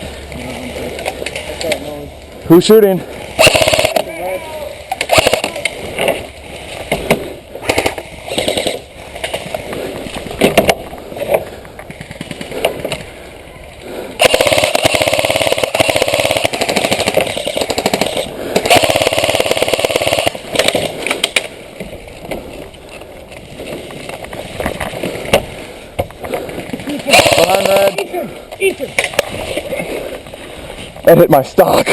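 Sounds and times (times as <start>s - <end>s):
airsoft guns firing: 3.4s - 4.3s, 5.0s - 6.0s, 7.6s - 8.9s, 14.2s - 21.3s, 27.1s - 28.1s.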